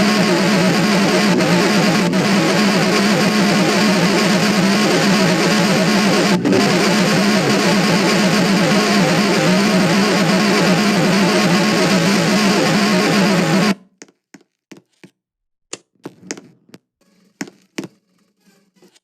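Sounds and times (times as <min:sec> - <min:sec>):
distorted electric guitar music: 0:00.0 - 0:13.8.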